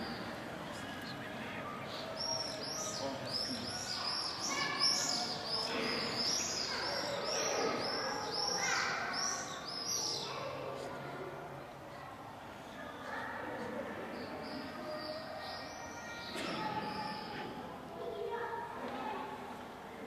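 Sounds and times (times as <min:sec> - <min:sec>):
small birds chirping: 0:00.0 - 0:10.5.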